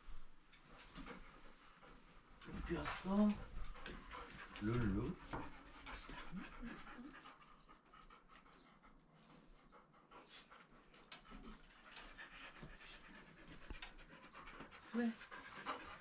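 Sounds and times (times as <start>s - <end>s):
dog panting: 0.0s - 16.0s.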